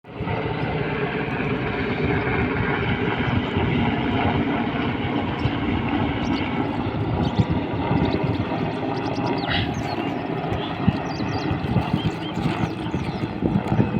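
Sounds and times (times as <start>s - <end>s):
helicopter rotor and engine: 0.0s - 13.9s.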